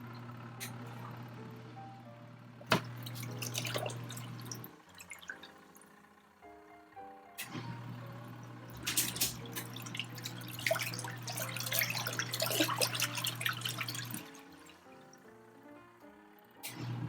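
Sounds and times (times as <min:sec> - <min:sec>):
washing machine motor hum: 0:00.0 - 0:17.0
water churning and splashing: 0:02.6 - 0:05.9, 0:08.7 - 0:15.2.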